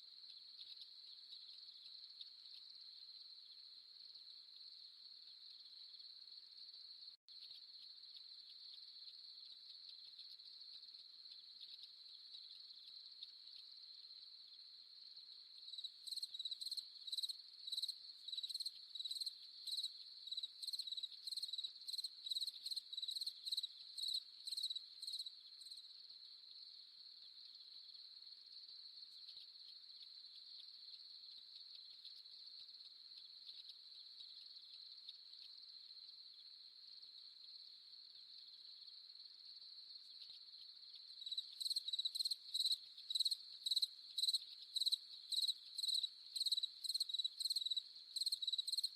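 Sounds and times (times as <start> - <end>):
crickets trilling: 37.2 - 48.9.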